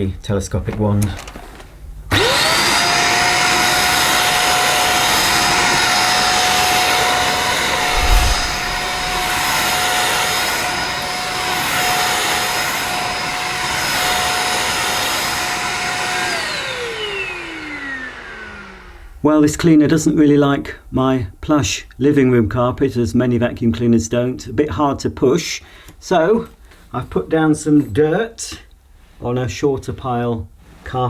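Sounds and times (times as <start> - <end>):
vacuum cleaner motor whining: 2.1 - 19.2
low bump: 7.6 - 10.0.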